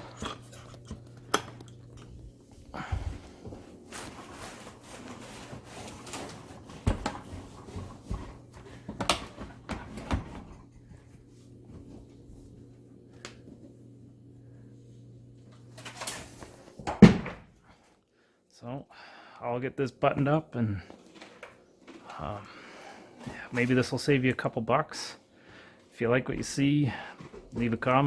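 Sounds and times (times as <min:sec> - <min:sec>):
steady low hum: 0:00.0 - 0:21.2.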